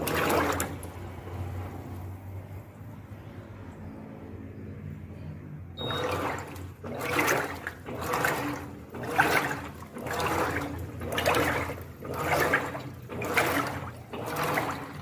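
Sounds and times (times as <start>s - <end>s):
washing machine water sloshing: 0.0s - 2.4s, 5.8s - 15.0s.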